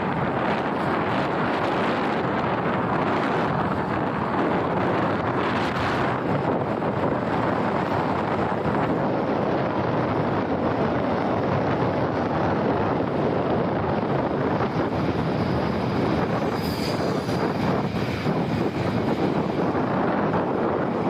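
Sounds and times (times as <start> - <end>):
motorbike engine and road noise: 0.0 - 21.0
wind rushing over microphone: 0.0 - 21.0.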